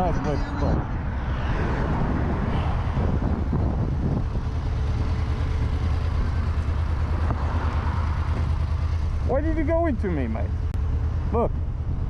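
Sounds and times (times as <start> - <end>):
motorcycle engine at low revs: 2.8 - 12.0.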